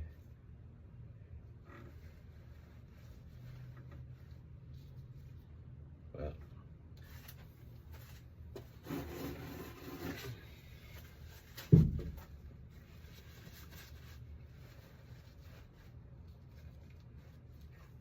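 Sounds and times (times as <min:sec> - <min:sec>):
rubbing and scuffling handling noises: 0:07.0 - 0:18.0.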